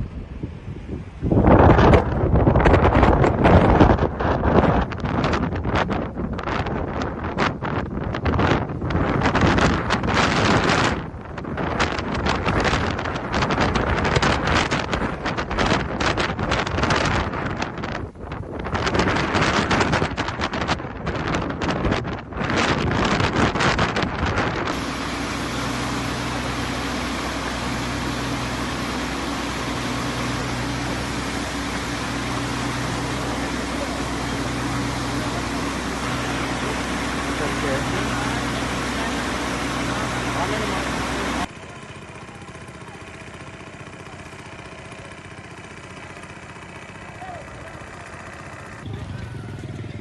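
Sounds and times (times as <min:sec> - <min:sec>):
wind buffeting microphone: 0:00.0 - 0:41.5
steady rumble with low hum: 0:00.0 - 0:41.6
loud rushing noise: 0:24.5 - 0:41.6.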